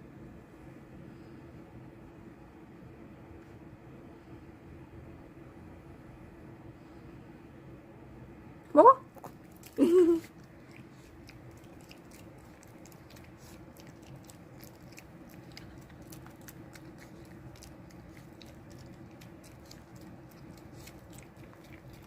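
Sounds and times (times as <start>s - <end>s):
steady low hum: 0.0s - 22.0s
dog chewing a treat: 9.2s - 22.0s.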